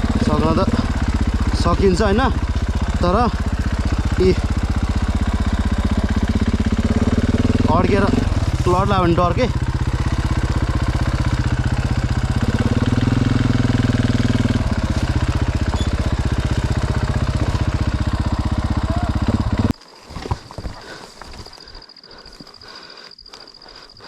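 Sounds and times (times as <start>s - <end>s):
dirt bike engine running: 0.0s - 21.8s.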